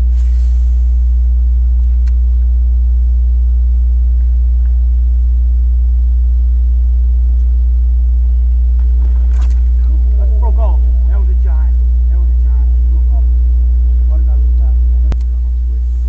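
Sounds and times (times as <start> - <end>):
loud low motor drone: 0.0 - 16.0
faint click: 1.8 - 2.2, 15.1 - 15.3.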